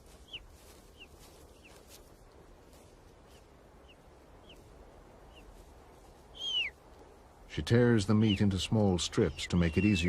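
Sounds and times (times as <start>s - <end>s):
eagle chicks begging peeps: 0.0s - 2.0s, 3.2s - 5.6s, 6.3s - 6.8s, 7.7s - 10.0s.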